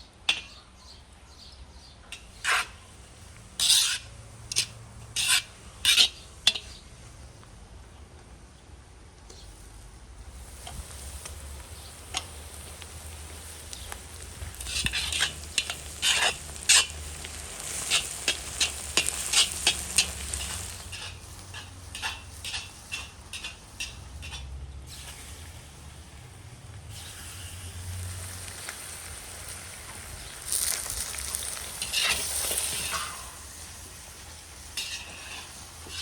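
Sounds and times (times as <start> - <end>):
utensil scraping a pan: 2.2 - 2.9, 3.5 - 6.8, 10.4 - 25.4, 29.9 - 36.0
food sizzling in a pan: 10.3 - 36.0.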